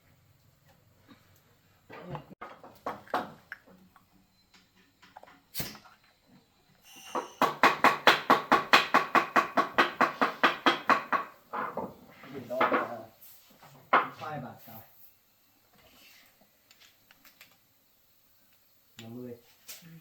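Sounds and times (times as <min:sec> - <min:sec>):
scattered knocks: 0:07.2 - 0:12.0.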